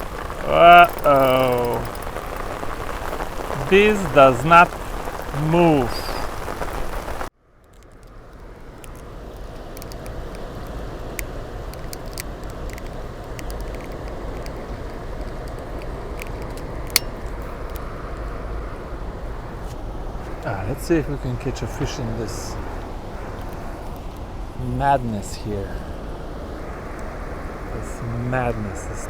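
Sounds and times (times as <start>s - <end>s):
raindrop taps: 0.0s - 7.3s
rain: 0.0s - 29.0s.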